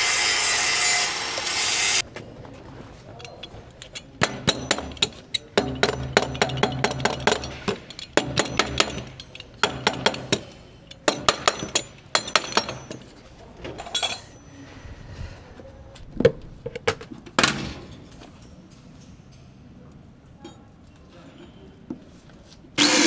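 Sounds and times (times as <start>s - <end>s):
hand tool tapping on fittings: 3.2s - 13.1s.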